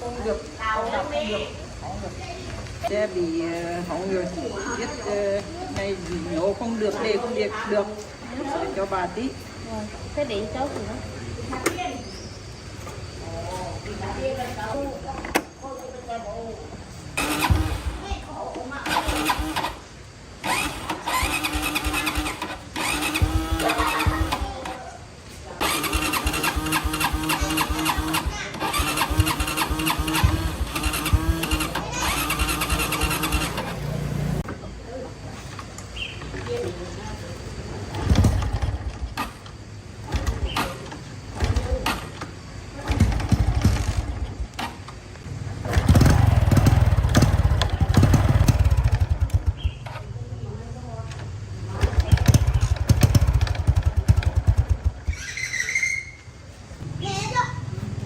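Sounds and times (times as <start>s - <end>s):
motorbike engine cranking: 17.2s - 25.0s, 25.6s - 34.5s, 37.9s - 50.2s, 51.1s - 56.2s.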